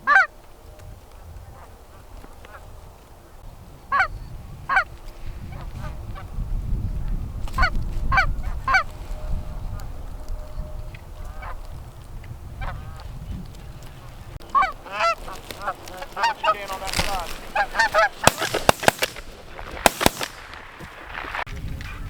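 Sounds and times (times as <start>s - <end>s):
geese honking: 0.0s - 0.3s, 14.0s - 20.9s
sharp cracks: 14.4s - 21.5s.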